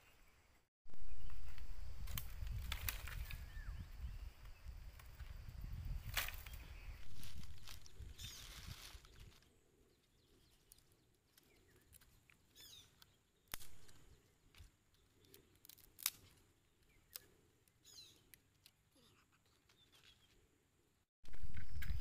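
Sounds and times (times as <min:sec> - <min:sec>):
faint bird chirps: 0:05.7 - 0:14.4, 0:16.7 - 0:20.5.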